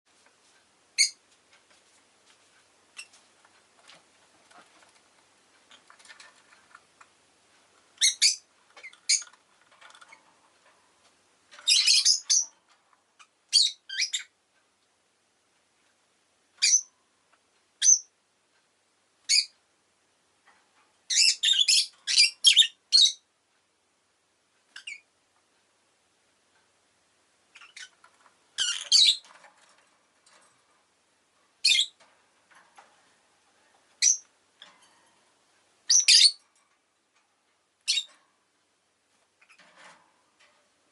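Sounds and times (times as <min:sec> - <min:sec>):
lovebird chirping: 0:01.0 - 0:01.2, 0:08.0 - 0:09.4, 0:11.6 - 0:12.6, 0:13.2 - 0:14.4, 0:16.6 - 0:16.9, 0:17.8 - 0:18.1, 0:19.3 - 0:19.5, 0:21.1 - 0:23.3, 0:24.8 - 0:25.1, 0:27.5 - 0:28.0, 0:28.6 - 0:29.3, 0:31.6 - 0:32.0, 0:34.0 - 0:34.3, 0:35.9 - 0:36.4, 0:37.8 - 0:38.1.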